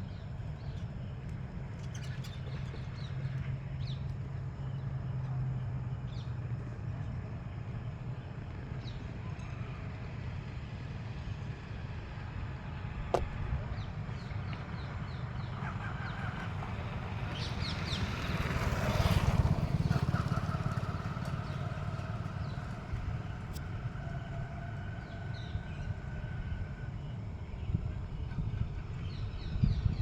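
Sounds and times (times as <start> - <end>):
vehicle passing: 14.7 - 25.8.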